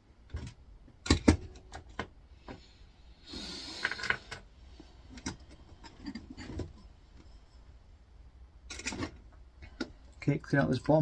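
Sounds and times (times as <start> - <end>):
metal parts clicking and clinking: 8.7 - 9.3.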